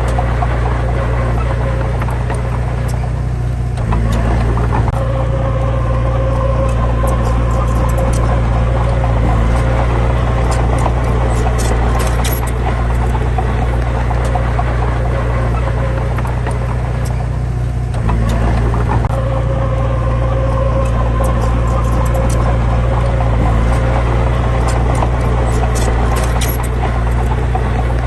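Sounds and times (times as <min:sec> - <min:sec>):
diesel engine idling: 0:00.0 - 0:28.0
faint whine: 0:00.0 - 0:28.0.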